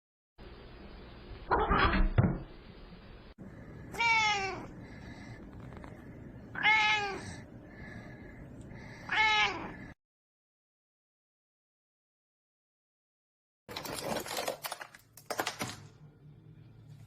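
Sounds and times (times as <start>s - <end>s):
cat meowing: 3.9s - 4.7s, 6.5s - 7.4s, 9.0s - 9.8s.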